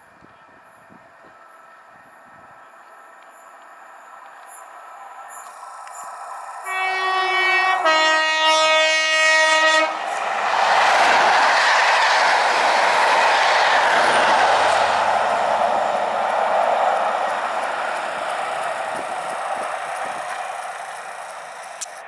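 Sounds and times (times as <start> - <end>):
train passing with rail clatter: 0.0 - 22.0
two-tone train horn: 6.6 - 10.2.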